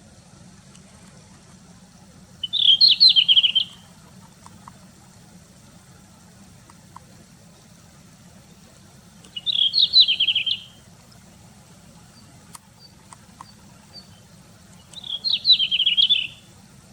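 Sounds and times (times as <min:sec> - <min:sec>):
faint bird call notes: 0:02.3 - 0:04.7, 0:09.1 - 0:16.6
bird song with falling notes: 0:02.4 - 0:03.9, 0:09.3 - 0:10.8, 0:12.2 - 0:16.5.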